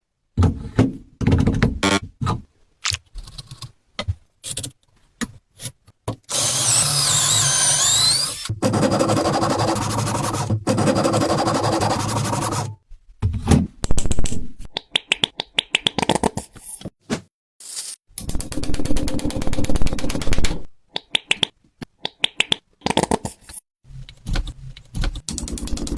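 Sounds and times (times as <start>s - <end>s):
power tool whining: 6.3s - 8.5s.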